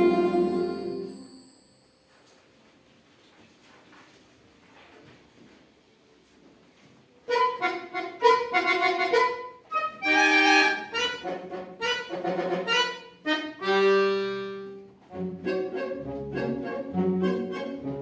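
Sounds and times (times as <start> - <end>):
accordion orchestra playing chords: 0.0 - 1.4, 7.3 - 18.0.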